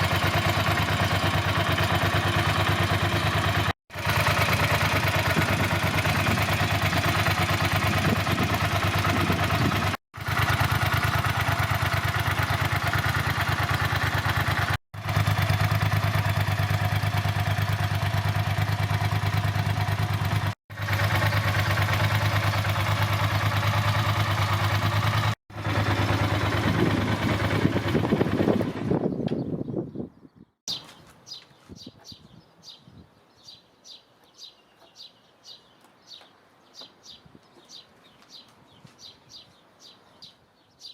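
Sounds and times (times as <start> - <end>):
motorcycle engine idling: 0.0 - 29.4.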